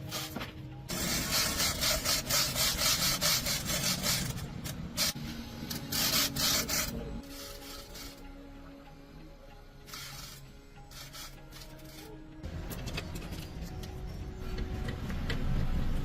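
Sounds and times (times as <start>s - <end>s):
hand tool scraping strokes: 0.0s - 8.3s, 9.8s - 12.2s.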